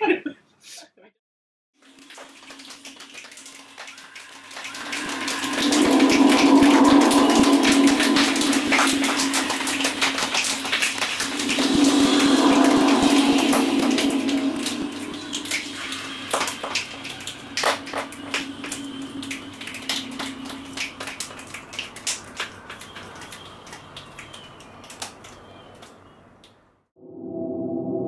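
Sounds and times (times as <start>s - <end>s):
clicks and slaps like rain: 1.8s - 26.6s
choir humming low note: 4.7s - 10.5s, 11.4s - 16.2s, 27.0s - 28.0s.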